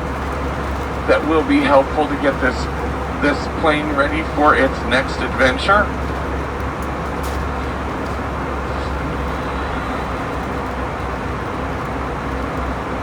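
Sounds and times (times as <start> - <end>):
airplane cabin noise: 0.0 - 13.0.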